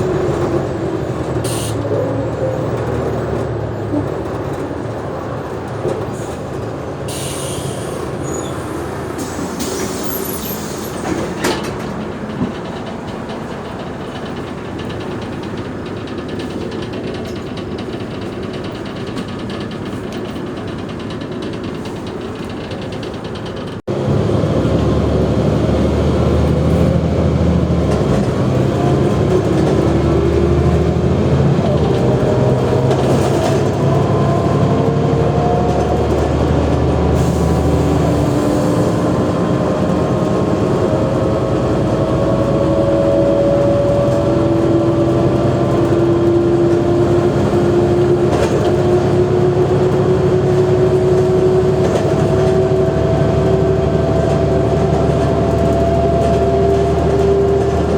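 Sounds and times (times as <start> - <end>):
diesel engine droning: 21.9 - 57.9.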